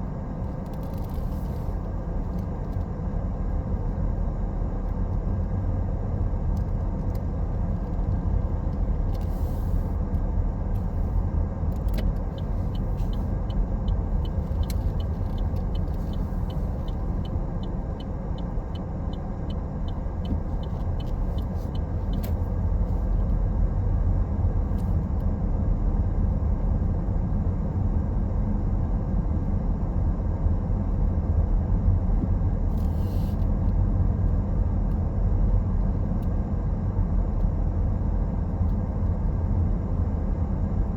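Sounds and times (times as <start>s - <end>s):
road and engine rumble in car: 0.0s - 40.9s
turn signal ticking: 11.8s - 22.5s.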